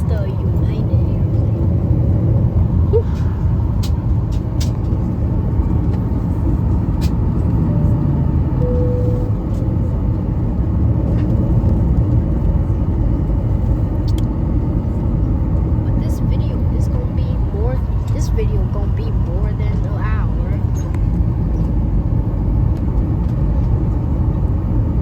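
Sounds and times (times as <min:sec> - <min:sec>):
airliner cabin rumble: 0:00.0 - 0:25.0
faint tone: 0:08.6 - 0:09.6.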